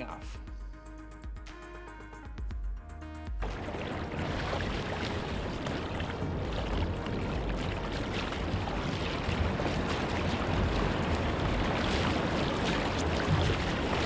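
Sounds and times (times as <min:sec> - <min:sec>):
water splashing around kayak: 0:03.3 - 0:14.0.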